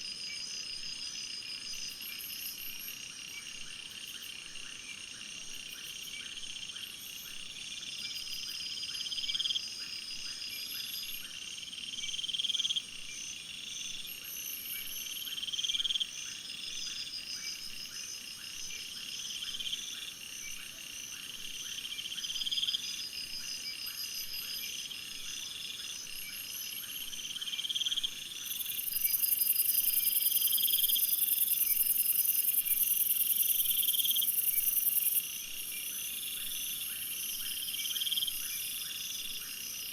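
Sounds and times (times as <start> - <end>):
insects chirring: 21.8 - 39.9.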